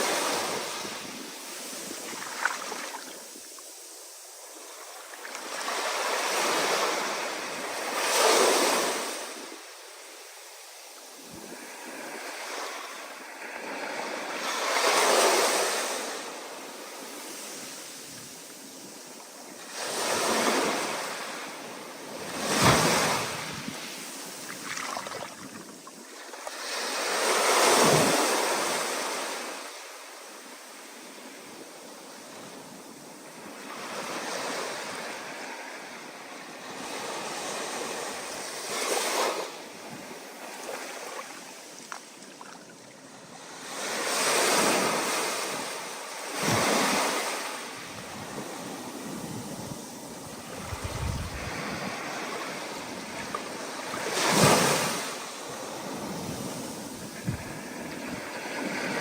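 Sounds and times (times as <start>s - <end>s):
waves breaking: 0.0s - 3.8s, 22.2s - 29.8s, 43.8s - 59.0s
hiss of water and wind: 0.0s - 59.0s.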